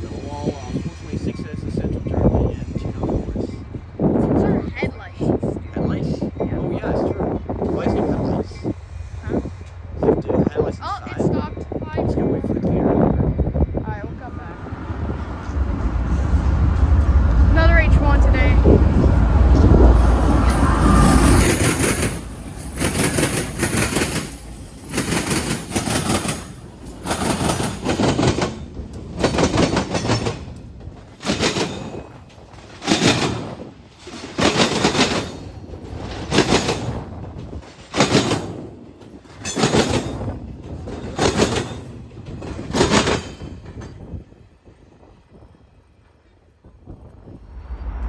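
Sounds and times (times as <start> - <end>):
train wheels clacking over rail joints: 18.7 - 44.4.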